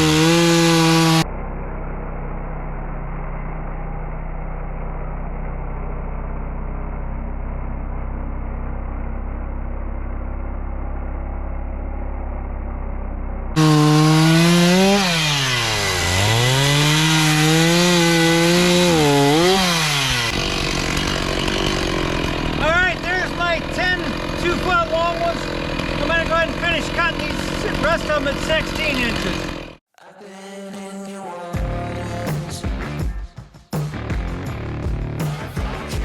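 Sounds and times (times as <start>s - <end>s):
chainsaw cutting a log: 0.0s - 1.2s, 13.6s - 29.8s.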